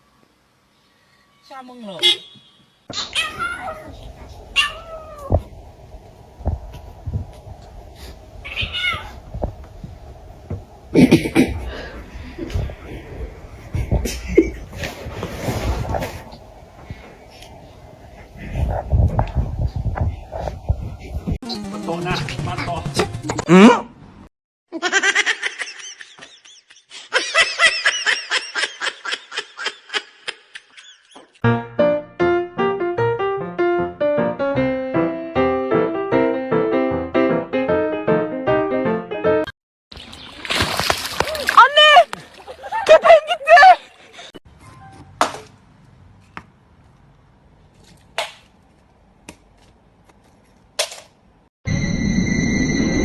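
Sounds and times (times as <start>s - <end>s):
cat meowing: 2.9s - 5.5s, 8.4s - 9.2s
dull thumps: 3.9s - 7.8s, 8.9s - 11.7s
high-pitched laughter: 24.7s - 31.4s, 41.9s - 44.0s.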